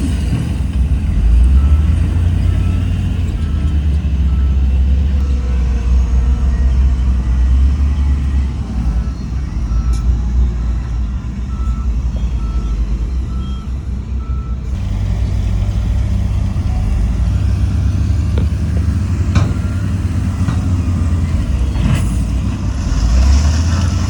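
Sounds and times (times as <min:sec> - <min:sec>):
diesel machinery engine running: 0:00.0 - 0:24.0
reversing alarm beeping: 0:00.3 - 0:21.7.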